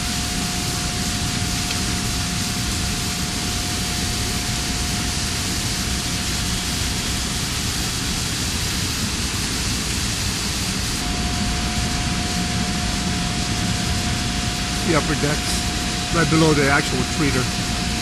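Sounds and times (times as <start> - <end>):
constant high whine: 0.0 - 18.0.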